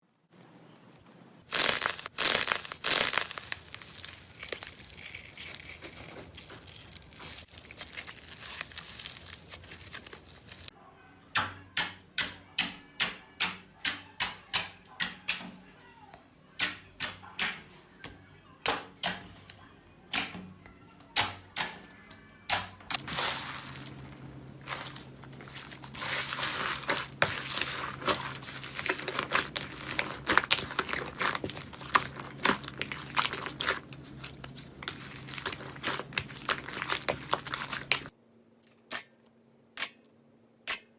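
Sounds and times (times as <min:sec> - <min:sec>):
slime crinkling and crackling: 0:01.4 - 0:10.7, 0:22.5 - 0:38.1
slime squishing: 0:01.4 - 0:10.7, 0:22.5 - 0:38.1
slime popping: 0:01.5 - 0:10.5, 0:24.6 - 0:38.1.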